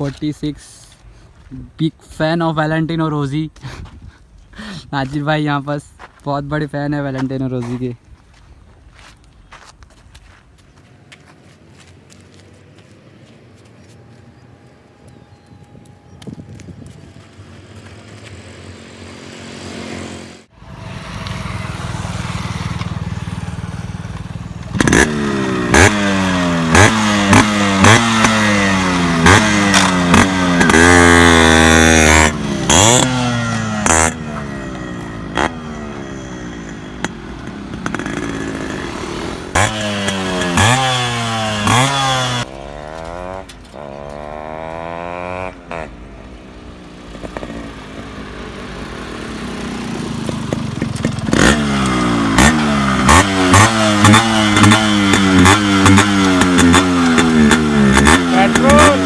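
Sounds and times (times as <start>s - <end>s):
motorcycle engine revving: 14.7s - 59.0s.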